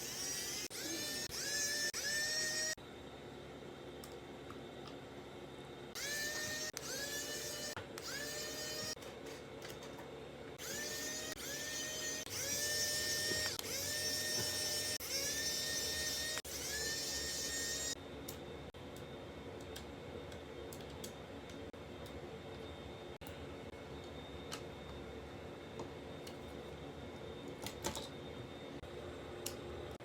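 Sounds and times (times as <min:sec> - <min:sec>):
handheld electric tool whirring: 0:00.0 - 0:02.8, 0:06.0 - 0:09.0, 0:10.6 - 0:18.0.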